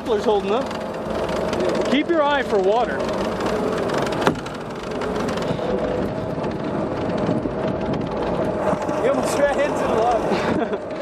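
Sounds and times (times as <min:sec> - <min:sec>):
motorboat engine running: 0:00.0 - 0:11.0
rush of wind and water: 0:00.0 - 0:11.0.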